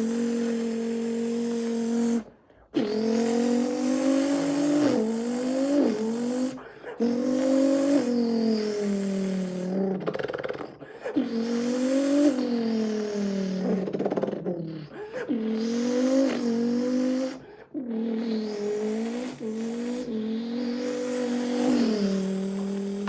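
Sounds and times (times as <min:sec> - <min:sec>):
man imitating engine revving: 0:00.0 - 0:23.0.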